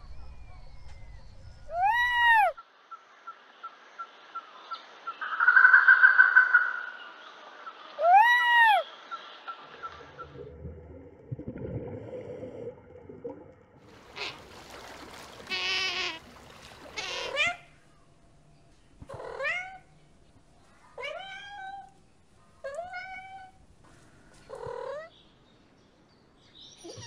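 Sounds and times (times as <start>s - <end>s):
low rumble: 0.0s - 2.2s.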